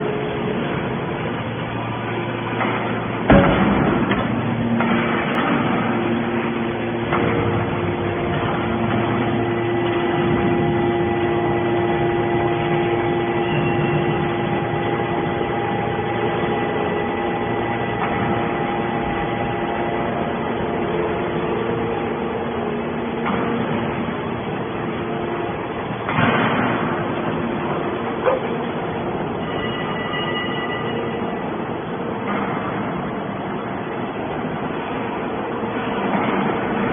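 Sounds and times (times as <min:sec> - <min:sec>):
hydraulic baler humming: 0:00.0 - 0:36.9
loud bang: 0:02.6 - 0:05.9.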